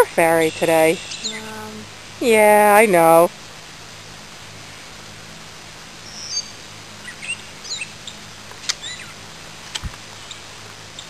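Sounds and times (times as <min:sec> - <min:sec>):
birds chirping: 0:00.0 - 0:03.3, 0:06.1 - 0:09.2.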